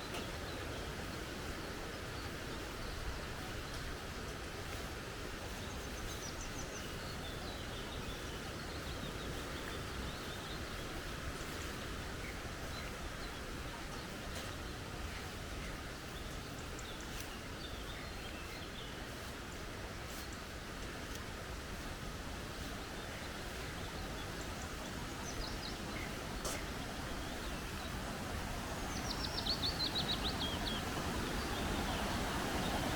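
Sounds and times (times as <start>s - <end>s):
creek flowing: 18.6s - 32.9s.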